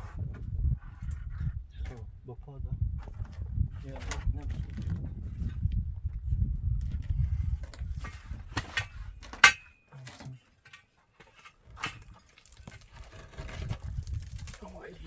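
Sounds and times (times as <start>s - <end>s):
hand tools knocking and clinking: 8.6s - 12.3s.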